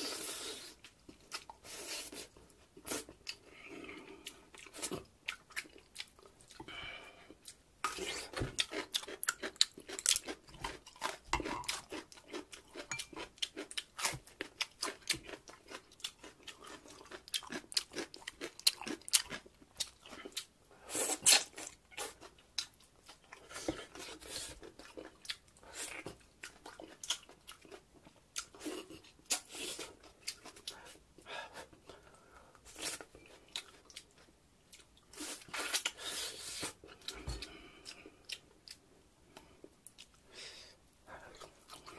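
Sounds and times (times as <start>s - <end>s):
chewing and lip smacking: 4.2s - 6.7s, 7.4s - 20.5s, 21.2s - 29.3s.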